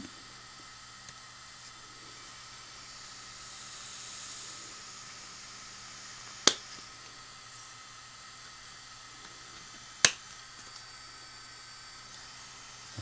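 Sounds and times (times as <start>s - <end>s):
cooling fan whirring: 0.0s - 13.0s.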